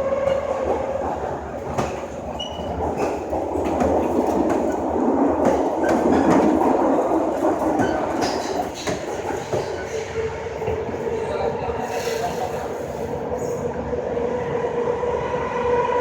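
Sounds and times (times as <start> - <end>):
train wheels rumbling on track: 0.0 - 16.0
clacks over rail joints: 0.3 - 10.9.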